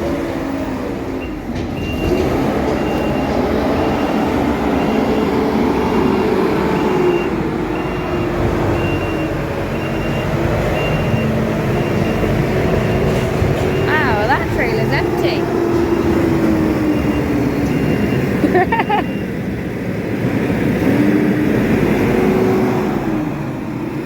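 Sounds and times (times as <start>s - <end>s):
diesel engine running: 0.0s - 24.0s
reversing alarm beeping: 1.2s - 19.6s.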